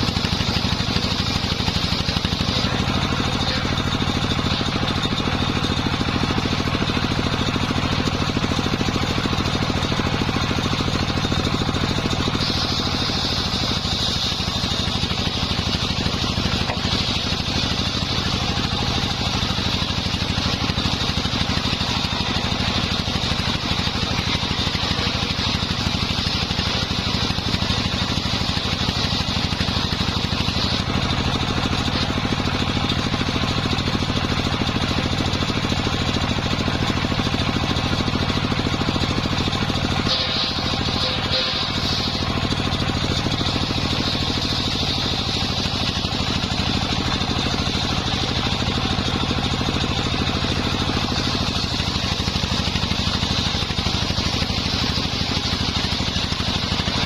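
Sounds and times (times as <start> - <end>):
circular saw blade whine: 0.0 - 35.2, 36.2 - 57.0
saw engine drone: 0.0 - 57.0.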